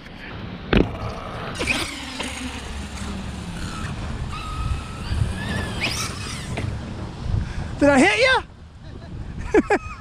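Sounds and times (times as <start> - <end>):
electric motor whining: 0.8 - 7.1
wind on microphone: 0.8 - 10.0.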